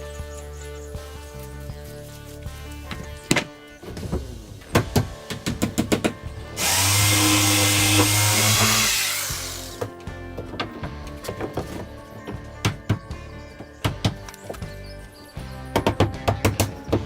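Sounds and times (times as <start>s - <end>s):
background music: 0.0s - 17.0s
power tool running: 6.6s - 9.8s.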